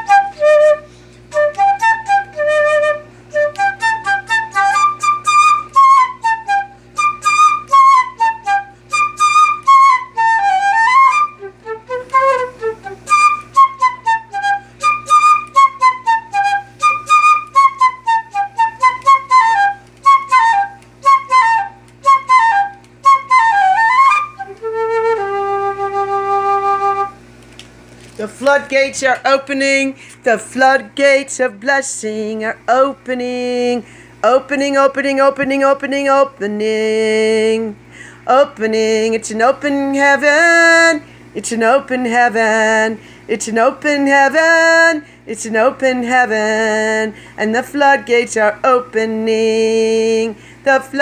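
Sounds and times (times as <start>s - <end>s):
flute playing quick runs: 0.0s - 27.2s
steady low hum: 0.0s - 51.0s.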